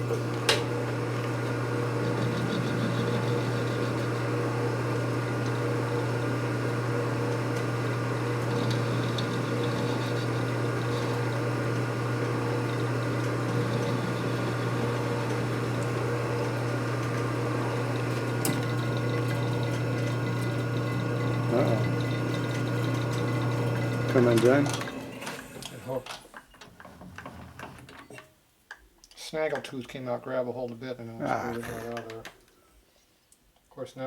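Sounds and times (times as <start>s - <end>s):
electric motor humming: 0.0s - 25.0s.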